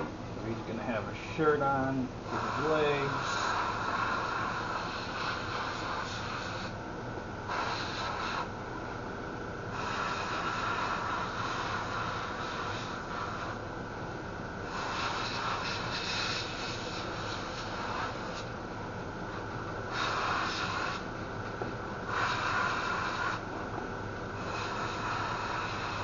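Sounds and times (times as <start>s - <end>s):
airbrush hissing in bursts: 2.3s - 6.8s, 7.5s - 8.5s, 9.7s - 13.6s, 14.6s - 18.5s, 19.9s - 21.1s, 22.1s - 23.4s, 24.4s - 26.0s.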